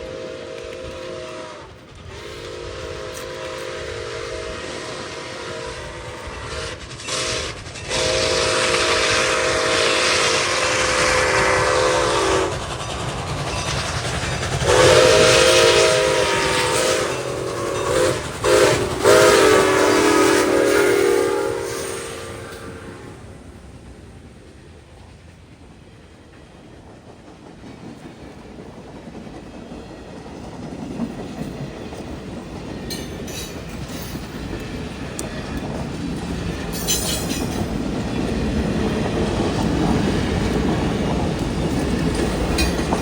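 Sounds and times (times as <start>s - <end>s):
locomotive air horn blasts: 0.0s - 12.6s, 14.6s - 23.3s
passing train rumble: 0.0s - 43.0s.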